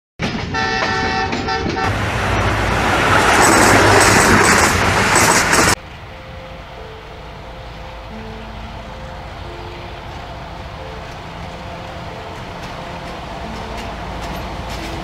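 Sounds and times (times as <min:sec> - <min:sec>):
rush of passing train: 0:00.2 - 0:15.0
multi-tone train horn blasts: 0:00.4 - 0:03.2.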